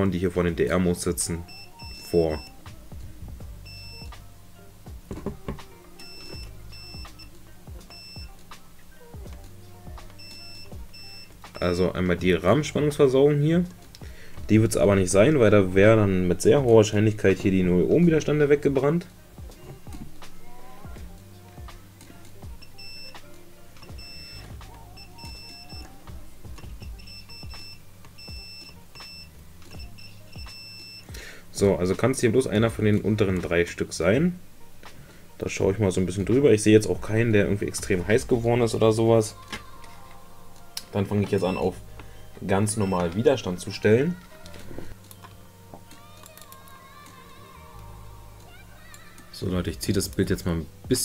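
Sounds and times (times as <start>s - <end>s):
low steady hum: 0.0s - 51.0s
multimeter beeping: 6.0s - 7.3s, 23.8s - 26.0s, 26.6s - 31.1s, 41.3s - 41.7s, 42.6s - 43.3s.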